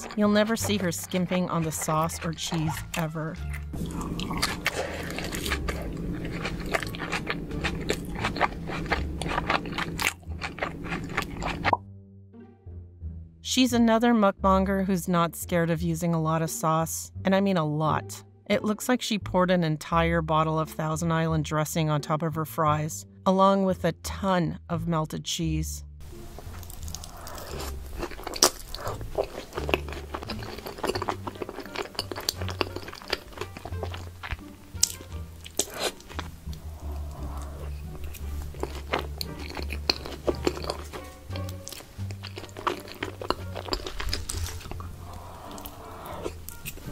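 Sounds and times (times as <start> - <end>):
person chewing food: 0.0 - 11.8, 26.1 - 46.9
wet mouth clicks and smacks: 7.6 - 11.8, 26.4 - 38.4.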